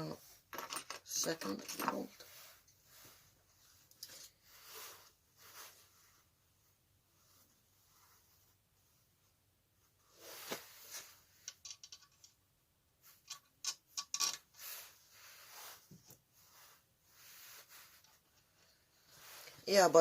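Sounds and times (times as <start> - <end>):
metal tools clicking and clinking: 0.6 - 2.1, 11.4 - 12.4, 13.2 - 14.5.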